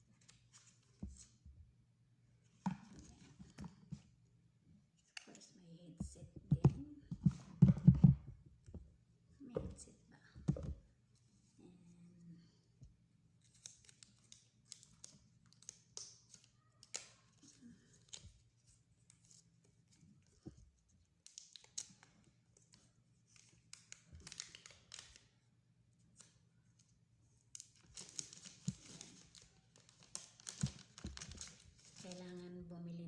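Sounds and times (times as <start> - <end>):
plastic packaging crinkling: 27.6 - 32.4.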